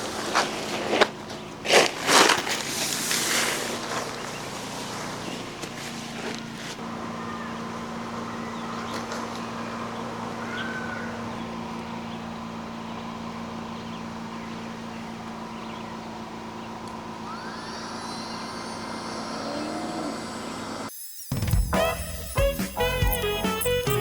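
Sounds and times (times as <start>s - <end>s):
electric air pump humming: 7.8s - 24.0s.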